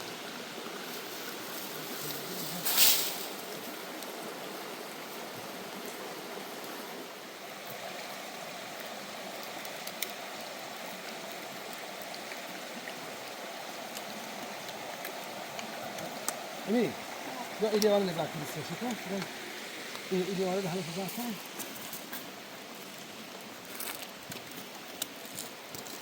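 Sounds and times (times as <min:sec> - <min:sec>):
stream water flowing: 0:00.0 - 0:26.0
loud hissing rush: 0:00.9 - 0:03.8, 0:14.8 - 0:21.9.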